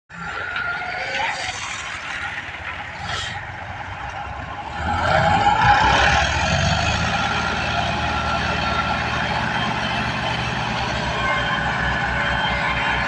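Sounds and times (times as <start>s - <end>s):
tractor engine running: 0.2s - 13.0s.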